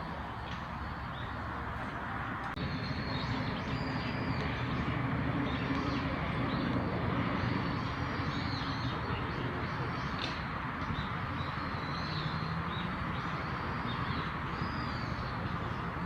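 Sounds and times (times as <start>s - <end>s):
low outdoor rumble: 0.0s - 12.1s.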